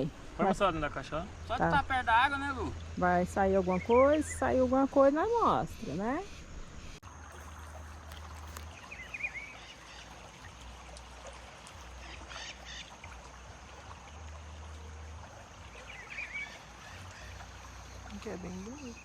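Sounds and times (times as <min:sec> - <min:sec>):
bird chirping: 0:08.4 - 0:10.3.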